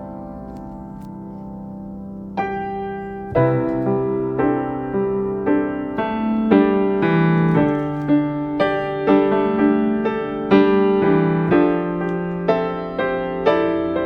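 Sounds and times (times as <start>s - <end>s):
slow gentle piano melody: 0.0s - 14.0s.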